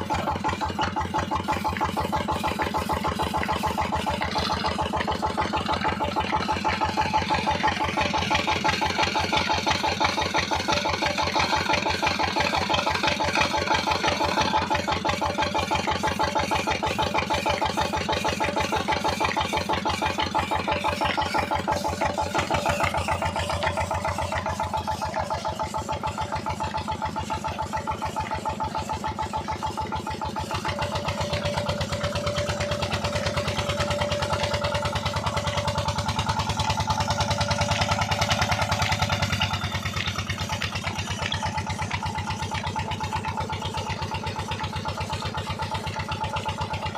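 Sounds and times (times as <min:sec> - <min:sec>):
engine running steadily: 0:00.0 - 0:46.9.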